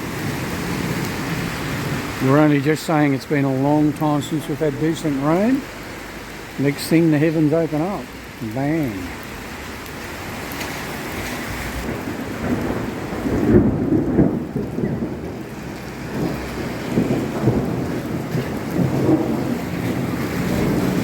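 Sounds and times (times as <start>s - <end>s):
heavy rain downpour: 0.0s - 21.0s
thunder rolling: 11.8s - 21.0s.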